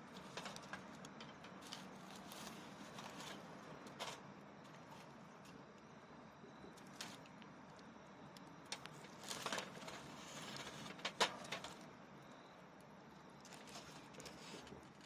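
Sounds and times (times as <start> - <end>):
campfire embers popping: 6.7 - 11.9.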